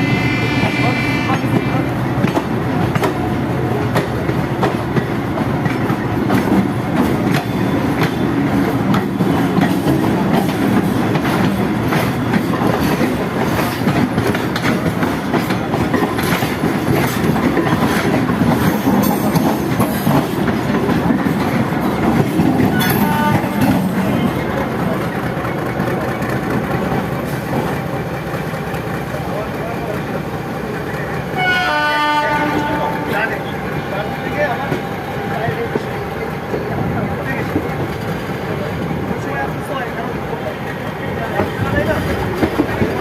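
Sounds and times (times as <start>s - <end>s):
train wheels clattering over rail joints: 1.5s - 43.0s.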